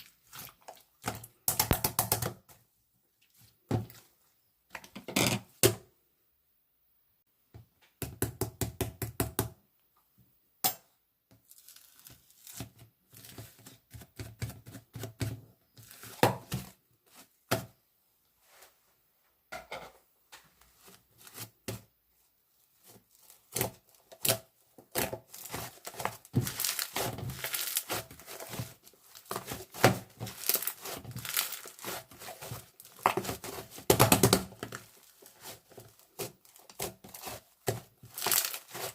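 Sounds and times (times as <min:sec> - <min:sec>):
paper or plastic crinkling: 0:25.0 - 0:38.9.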